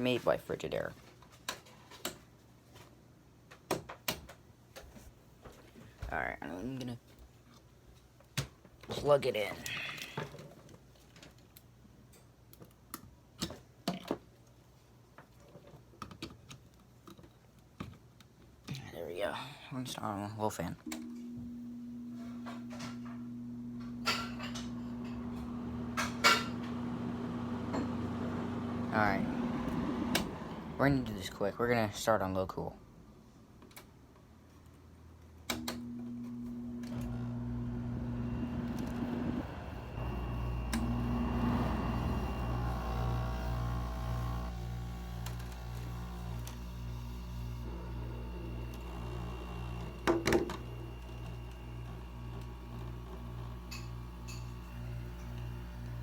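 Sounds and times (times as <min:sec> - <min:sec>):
faint low hum: 0:18.8 - 0:31.3.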